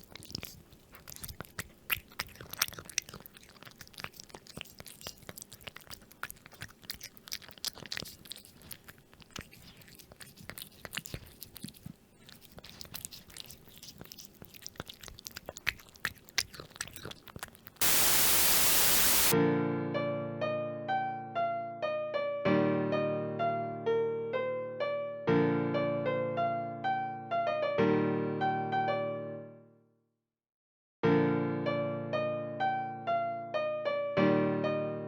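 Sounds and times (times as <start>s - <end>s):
cat crunching food: 0.0s - 19.3s
loud static hiss: 17.8s - 19.4s
piano music: 17.9s - 29.7s, 31.0s - 35.0s.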